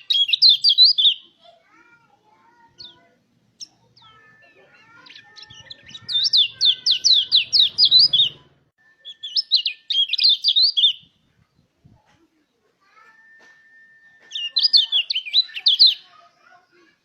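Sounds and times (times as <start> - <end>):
bird whistled song: 0.0 - 1.3, 3.6 - 11.2, 12.8 - 16.1.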